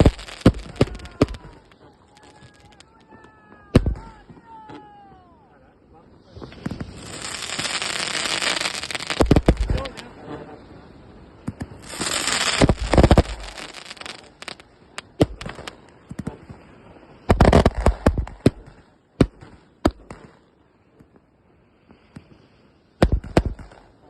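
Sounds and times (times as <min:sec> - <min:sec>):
firework battery bangs: 0:00.0 - 0:02.5, 0:06.5 - 0:10.0, 0:11.4 - 0:16.3.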